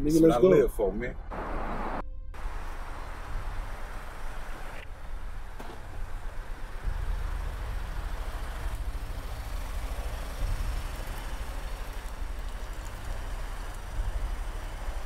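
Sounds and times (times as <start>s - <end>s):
car engine idling: 2.4s - 15.0s.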